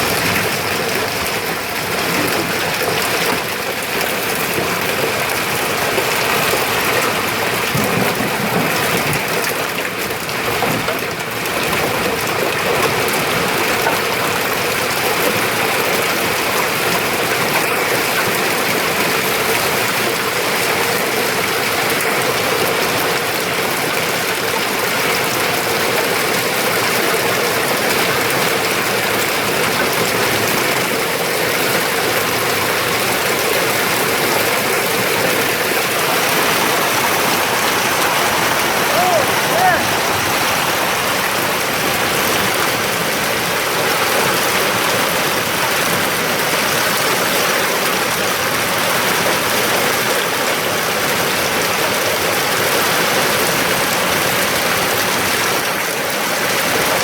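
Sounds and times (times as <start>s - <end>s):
hail and heavy rain pelting: 0.0s - 57.0s.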